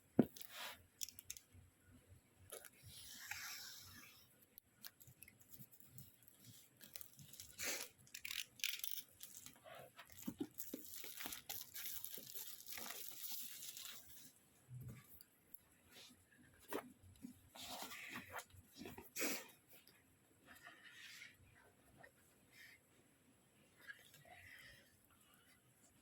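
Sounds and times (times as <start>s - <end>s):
small clicks and rustles: 4.4s - 19.1s
wrapping tearing and crinkling: 4.8s - 14.3s.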